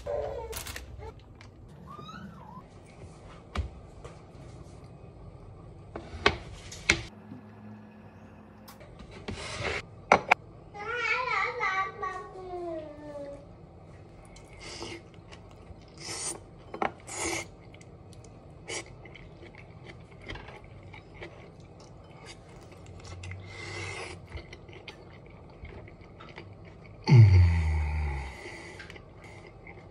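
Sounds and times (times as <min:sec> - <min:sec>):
person chewing food: 0:14.1 - 0:29.9
person humming mmm: 0:27.0 - 0:28.7.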